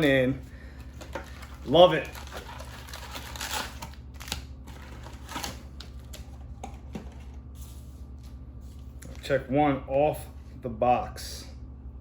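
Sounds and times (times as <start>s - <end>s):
cards and foil packs rustling: 0.0s - 9.3s
low steady hum: 0.0s - 12.0s.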